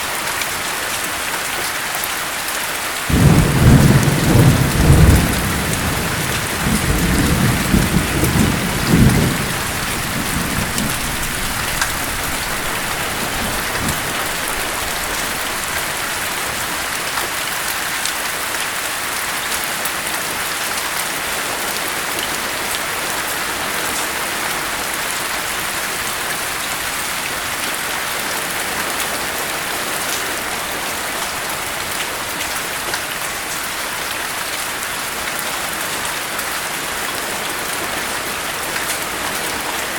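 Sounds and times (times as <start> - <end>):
heavy rain: 0.0 - 39.9
thunder rumbling: 3.1 - 17.0.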